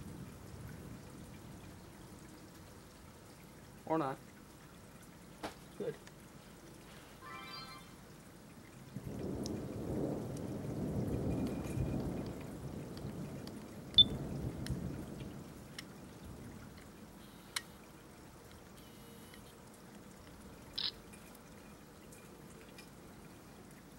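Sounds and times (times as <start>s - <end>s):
low rolling thunder: 0.0s - 1.7s, 8.8s - 16.8s
faint ticks: 9.2s - 9.6s, 11.2s - 15.9s, 16.7s - 17.8s.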